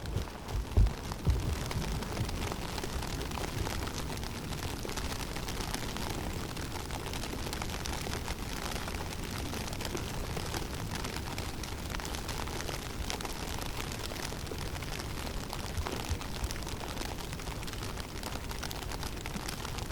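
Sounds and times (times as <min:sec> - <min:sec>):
blown snow ticking: 0:00.0 - 0:06.7
wind with low rumble: 0:00.0 - 0:19.9.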